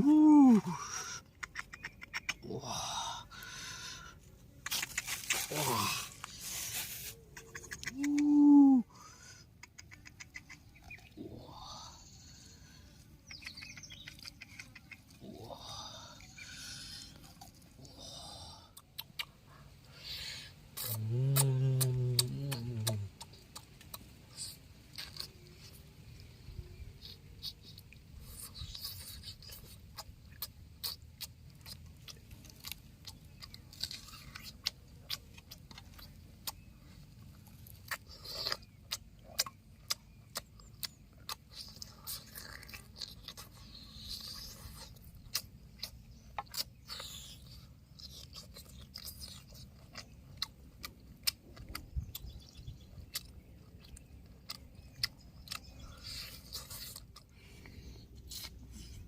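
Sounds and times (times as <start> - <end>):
person crunching and chewing food: 20.0 - 25.9, 27.0 - 59.0.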